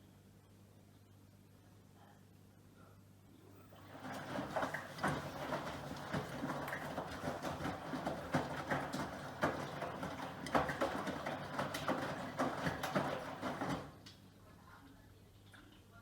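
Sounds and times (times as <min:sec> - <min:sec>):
laundry tumbling in washing machine: 0:03.7 - 0:14.3.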